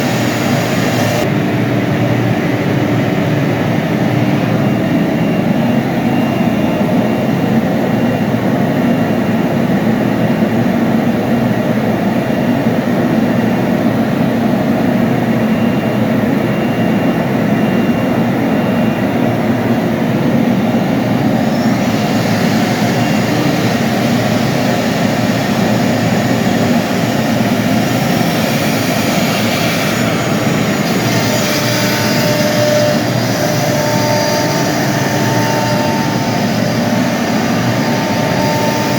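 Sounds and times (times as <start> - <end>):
bright hiss: 0.0 - 1.2
steady tones: 0.0 - 1.4, 19.3 - 38.9
milling machine running: 0.0 - 1.8, 18.4 - 38.9.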